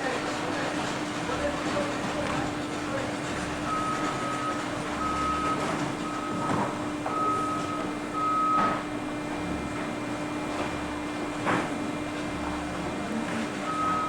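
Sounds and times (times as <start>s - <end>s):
industrial baler humming: 0.0s - 14.0s
high electronic warning beep: 13.7s - 14.0s.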